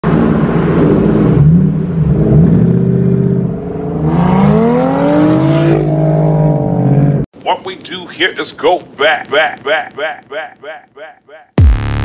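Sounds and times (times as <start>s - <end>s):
car engine accelerating: 0.1s - 7.3s.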